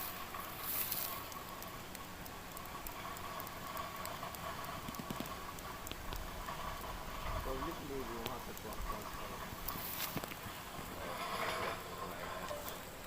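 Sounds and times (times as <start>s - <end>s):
light ticks: 0.0s - 12.9s
patter of falling water spray: 0.0s - 13.0s.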